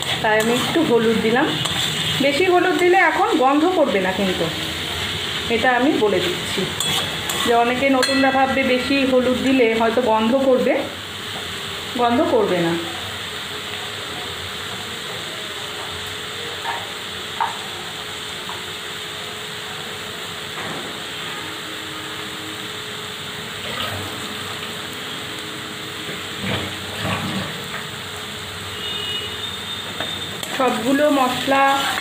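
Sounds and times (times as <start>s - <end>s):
metal spatula scraping pan: 0.0s - 3.0s, 6.7s - 8.6s
onions frying in oil: 0.0s - 32.0s.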